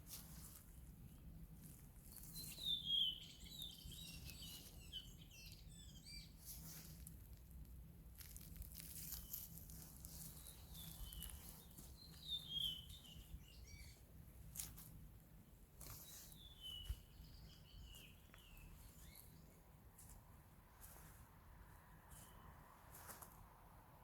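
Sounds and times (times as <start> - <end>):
low outdoor rumble: 0.0 - 2.5, 3.2 - 24.0.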